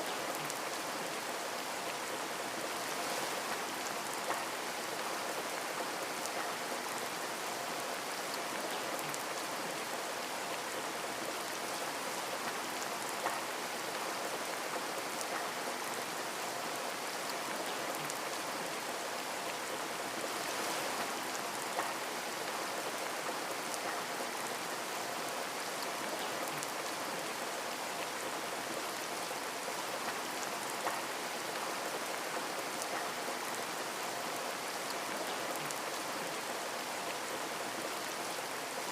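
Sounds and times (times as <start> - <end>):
rain pattering on a window: 0.0 - 38.9
raindrop ticks: 4.2 - 4.6, 12.4 - 13.5.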